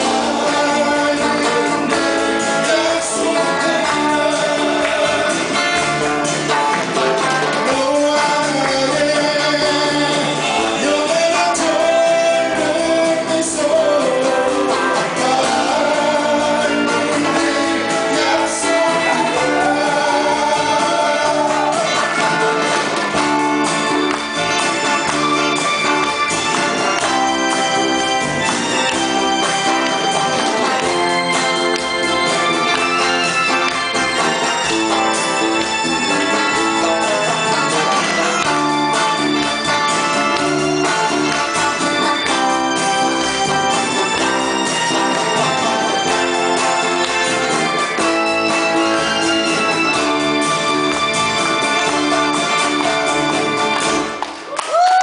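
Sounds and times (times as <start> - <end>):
person singing: 0.0 - 6.3, 7.4 - 23.2
steady drum beat: 0.0 - 49.4
keyboard: 0.0 - 54.5
bass guitar: 0.0 - 55.0
electric guitars: 0.0 - 55.0.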